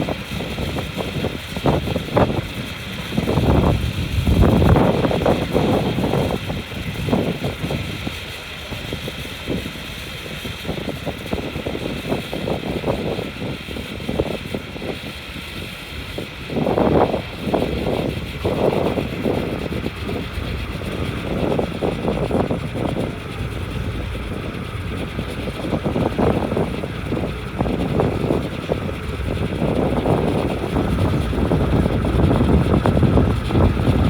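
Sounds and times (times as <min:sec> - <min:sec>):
steady high hum: 0:00.0 - 0:09.6, 0:15.9 - 0:34.0.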